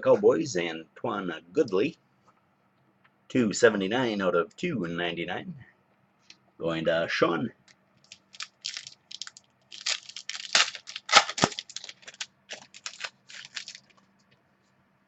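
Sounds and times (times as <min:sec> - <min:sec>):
plastic wrapper tearing and crinkling: 0:08.0 - 0:14.0.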